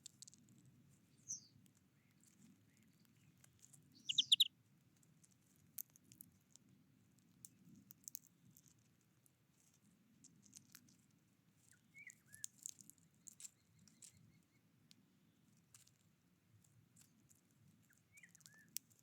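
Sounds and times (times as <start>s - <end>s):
birds pecking seed: 0.0s - 19.0s
faint bird chirp: 1.0s - 4.5s, 11.6s - 15.4s, 17.8s - 18.8s.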